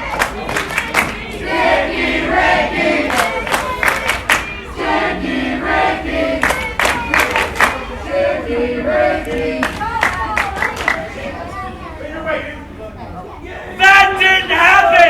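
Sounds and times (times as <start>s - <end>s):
crowd clapping: 0.0s - 1.6s, 2.3s - 4.9s, 6.2s - 8.0s, 9.2s - 11.3s
crowd chanting: 0.0s - 15.0s
crowd shouting: 0.0s - 15.0s.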